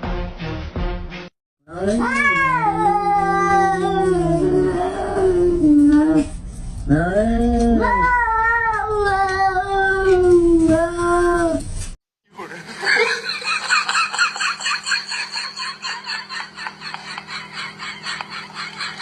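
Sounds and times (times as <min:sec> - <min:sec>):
cat yowling: 0:01.8 - 0:05.0.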